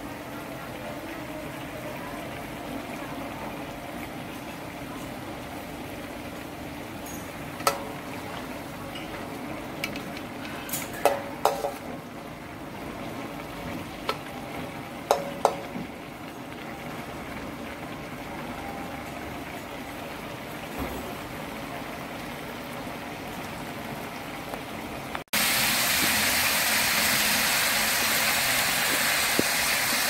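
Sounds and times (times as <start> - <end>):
food sizzling in a wok: 0.0 - 17.2, 25.3 - 30.0.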